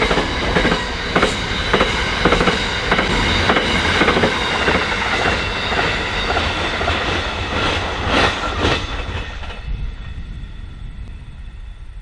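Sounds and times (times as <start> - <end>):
train wheels clicking over rail joints: 0.0 - 9.7.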